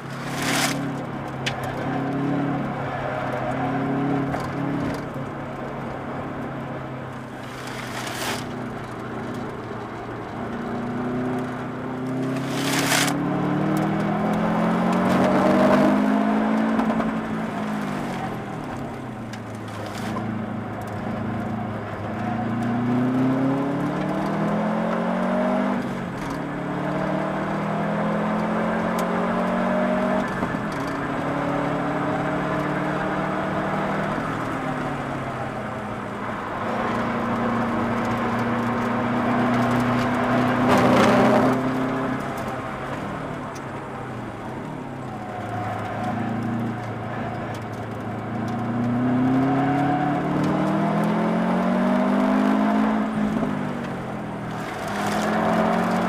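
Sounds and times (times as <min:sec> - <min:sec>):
car engine revving from inside: 0:22.4 - 0:25.8.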